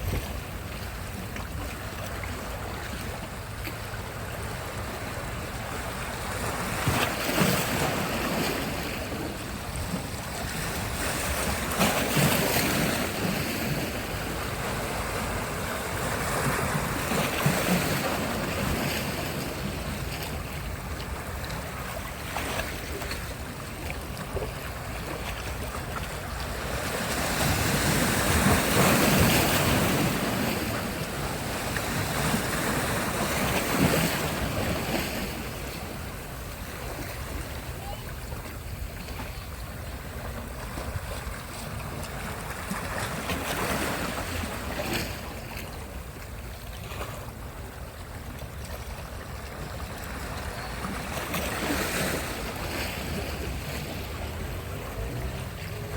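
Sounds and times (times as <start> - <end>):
wind rumbling on microphone: 0.0 - 55.9
sea surf breaking: 4.7 - 46.2, 49.0 - 55.9.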